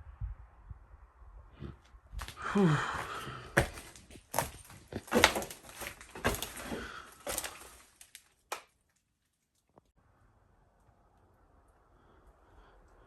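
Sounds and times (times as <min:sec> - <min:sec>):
knocks and thumps: 0:03.0 - 0:07.8.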